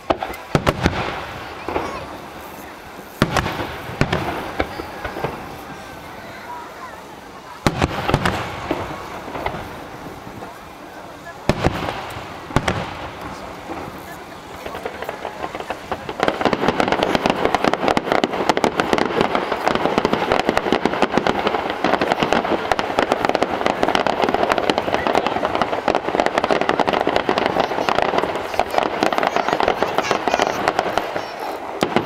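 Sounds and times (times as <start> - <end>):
fireworks bursts and crackling: 0.0 - 32.0.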